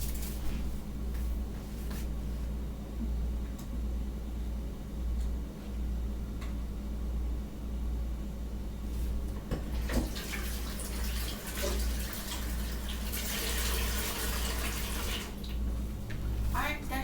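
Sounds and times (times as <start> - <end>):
steady low hum: 0.0 - 9.8, 15.4 - 17.0
tap running water splashing: 9.5 - 15.6.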